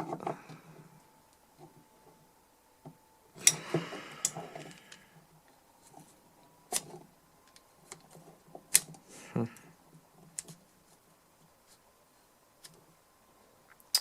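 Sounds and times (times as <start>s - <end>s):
scraping and rustling: 5.8s - 9.3s.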